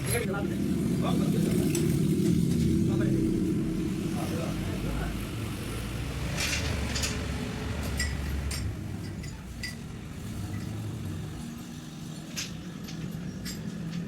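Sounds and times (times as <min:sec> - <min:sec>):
low mechanical rumble: 0:00.0 - 0:14.0
metal tools clinking: 0:06.4 - 0:09.9, 0:12.2 - 0:14.0.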